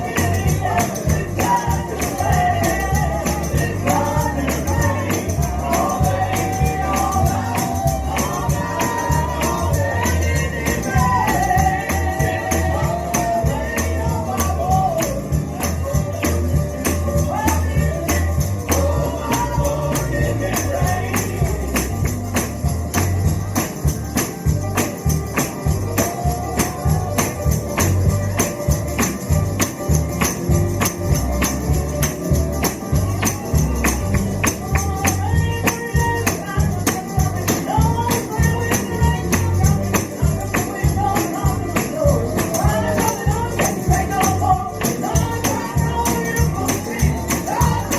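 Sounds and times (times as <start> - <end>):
gospel music: 0.0 - 47.9
strong bass: 0.0 - 47.9
tambourine shaken: 0.0 - 47.9
person singing: 33.1 - 47.9.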